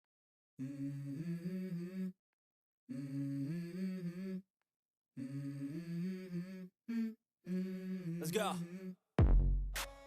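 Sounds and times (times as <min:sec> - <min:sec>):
person humming a melody: 0:00.6 - 0:02.2, 0:02.9 - 0:04.5, 0:05.2 - 0:09.0.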